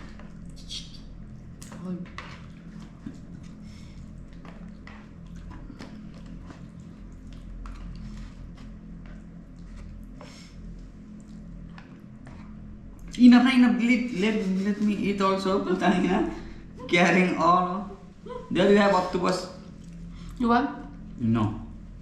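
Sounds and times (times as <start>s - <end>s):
steady low hum: 0.0s - 22.0s
chewing seafood: 1.2s - 13.2s.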